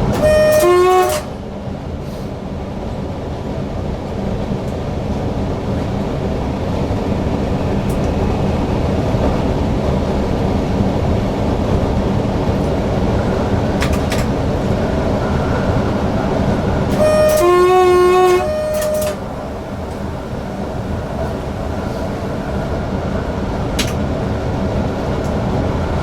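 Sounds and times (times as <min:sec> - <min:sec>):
two-tone train horn: 0:00.0 - 0:01.4, 0:16.9 - 0:22.3
electric train running at speed: 0:00.0 - 0:26.0.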